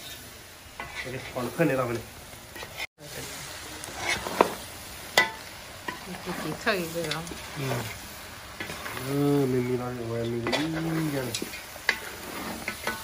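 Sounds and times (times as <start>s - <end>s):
food sizzling in pan: 0.0s - 13.0s
wooden spatula scraping pan: 0.8s - 2.9s, 3.8s - 8.0s, 8.6s - 13.0s.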